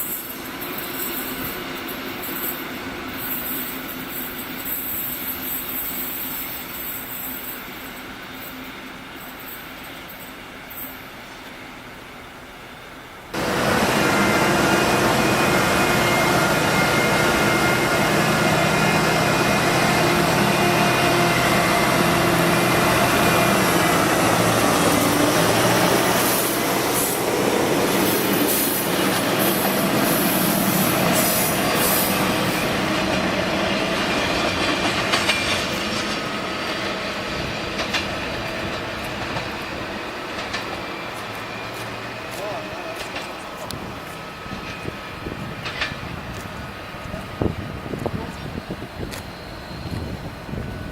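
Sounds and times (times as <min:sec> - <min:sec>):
train running on rails: 0:00.0 - 0:50.9
high-pitched wheel squeals: 0:48.9 - 0:50.9.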